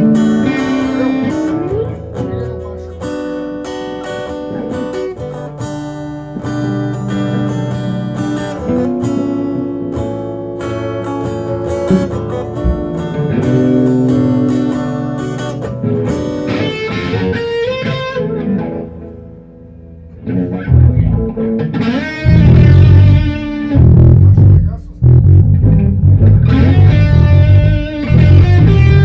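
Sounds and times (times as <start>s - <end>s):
plucked and strummed guitar: 0.0s - 29.0s
heavy bass notes: 12.6s - 15.6s, 20.2s - 29.0s.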